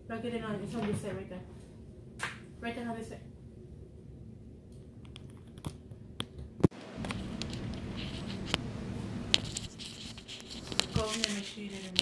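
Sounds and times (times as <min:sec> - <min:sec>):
microphone handling clicks and rustles: 0:06.6 - 0:08.6, 0:09.4 - 0:12.0.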